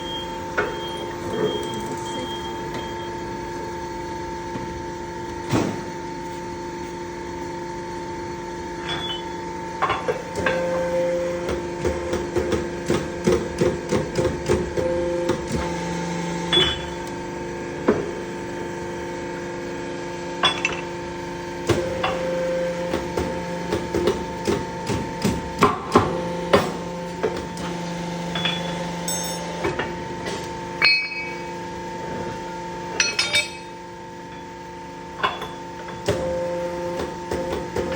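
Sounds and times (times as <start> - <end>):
steady machine hum: 0.0 - 37.9
metal knocks and clinks: 33.0 - 33.7.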